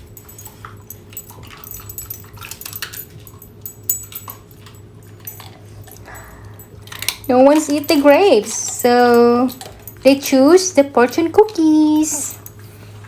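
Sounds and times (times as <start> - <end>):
dogs crunching cookies: 0.0 - 13.0
low hum: 0.0 - 13.0.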